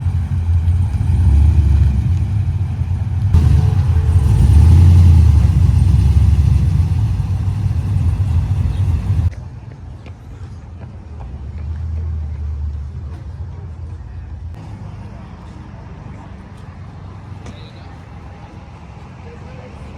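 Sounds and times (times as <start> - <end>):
car engine rumbling: 0.0 - 9.3
quieter engine rumble: 0.0 - 9.4.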